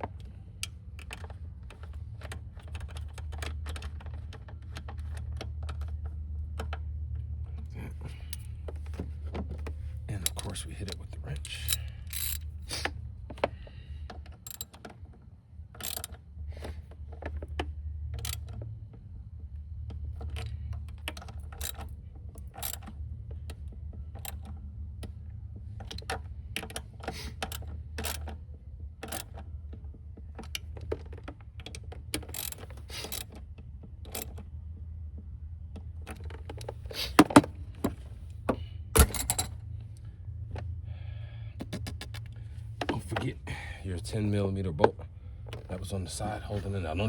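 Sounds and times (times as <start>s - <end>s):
steady low hum: 0.0s - 47.0s
ratchet wrench clicking: 11.4s - 13.0s, 14.4s - 14.8s, 15.8s - 16.2s, 18.2s - 18.5s, 20.3s - 23.0s, 27.2s - 28.3s, 32.2s - 33.4s.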